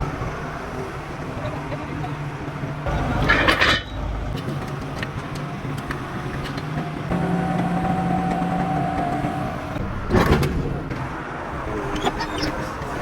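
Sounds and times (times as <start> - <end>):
heavy machinery humming: 0.0 - 13.0.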